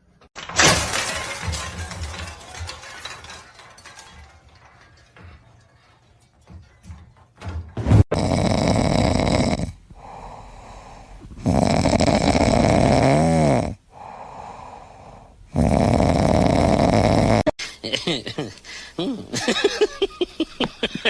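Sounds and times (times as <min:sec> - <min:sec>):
loud snoring: 0:08.1 - 0:17.5
quiet breath: 0:09.9 - 0:11.4, 0:13.9 - 0:15.5.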